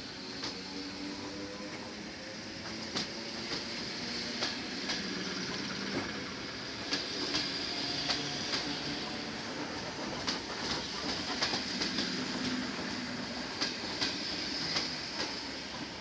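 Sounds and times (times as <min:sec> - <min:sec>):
electric train running noise: 0:00.0 - 0:16.0.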